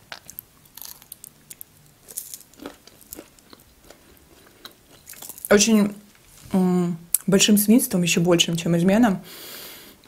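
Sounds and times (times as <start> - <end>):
person chewing crunchy nuts: 0.0 - 5.5.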